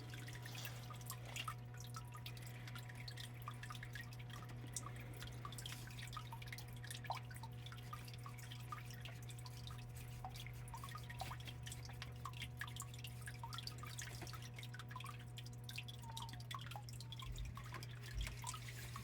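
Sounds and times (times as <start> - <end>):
steady low hum: 0.0 - 19.0
water dripping and trickling: 0.0 - 19.0.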